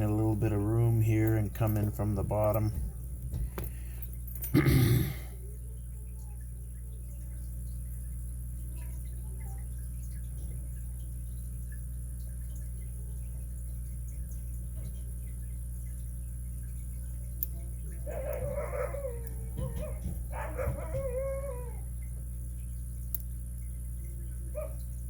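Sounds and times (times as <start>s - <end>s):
steady low hum: 0.0s - 25.0s
dog whining: 18.0s - 21.9s.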